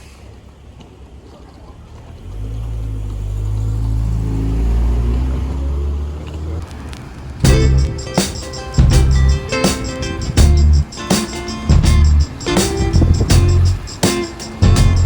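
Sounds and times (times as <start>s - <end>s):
vehicle engine passing: 2.1s - 8.0s.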